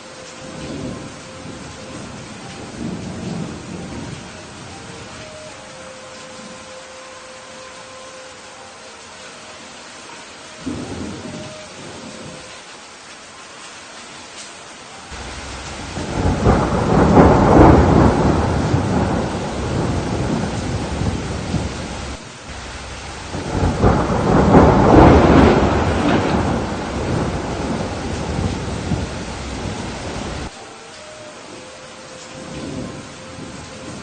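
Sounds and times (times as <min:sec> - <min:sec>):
steady rain: 0:00.0 - 0:34.0
thunder rolling: 0:00.4 - 0:05.1, 0:10.6 - 0:12.4, 0:15.1 - 0:30.5.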